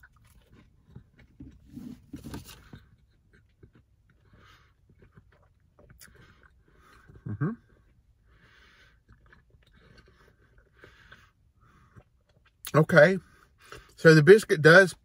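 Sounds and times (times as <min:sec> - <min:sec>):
person chewing food: 0:00.0 - 0:12.7.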